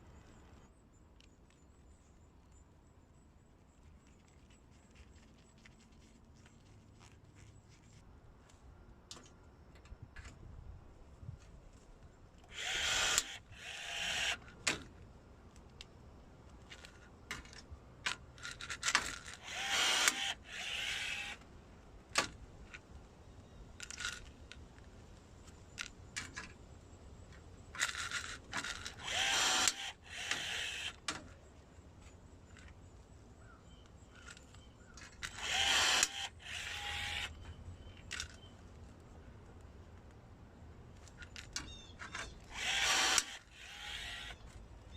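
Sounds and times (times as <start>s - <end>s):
rivet gun motor whirring: 12.4s - 14.6s, 18.6s - 21.4s, 27.8s - 31.2s, 35.2s - 37.4s, 41.4s - 44.6s.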